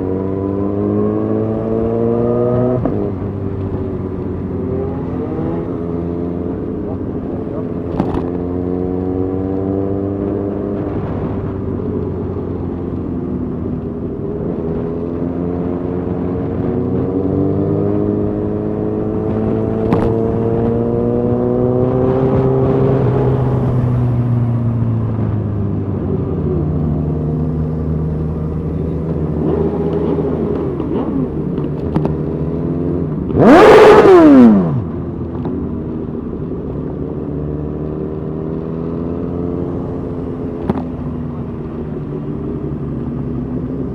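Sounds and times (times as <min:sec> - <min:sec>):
motorcycle engines running: 0:00.0 - 0:43.9
engine revving hard: 0:33.3 - 0:34.8.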